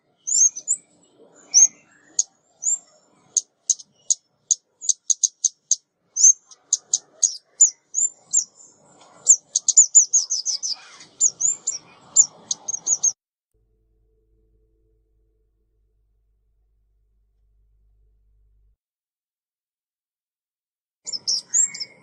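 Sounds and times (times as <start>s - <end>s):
songbird chirping: 0.0s - 13.2s, 21.1s - 22.0s.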